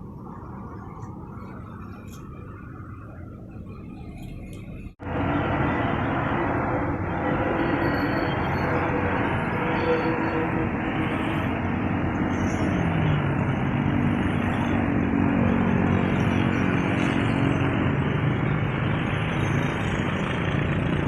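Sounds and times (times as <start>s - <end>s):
traffic hum: 0.0s - 21.0s
vehicle engine rising in pitch: 0.0s - 21.0s.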